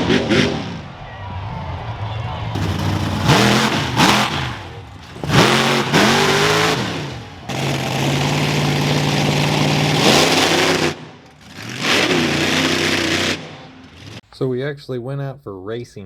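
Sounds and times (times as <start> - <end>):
truck engine revving: 0.0 - 1.0, 2.5 - 14.2.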